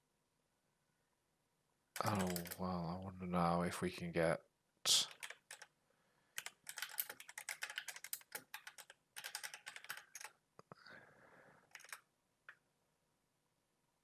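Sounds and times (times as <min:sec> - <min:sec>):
computer keyboard typing: 0:02.0 - 0:02.7, 0:05.0 - 0:05.8, 0:06.4 - 0:10.4, 0:11.6 - 0:12.1.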